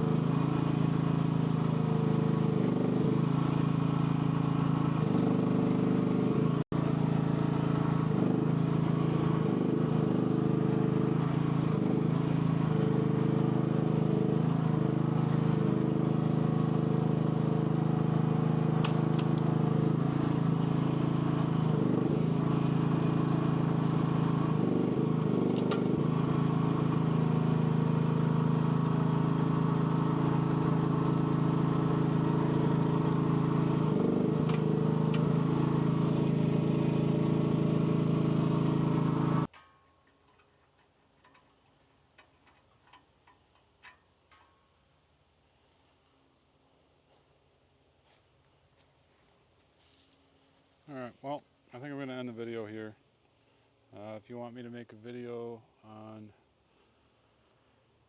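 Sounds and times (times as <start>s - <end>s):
mini excavator engine running: 0.0s - 44.3s.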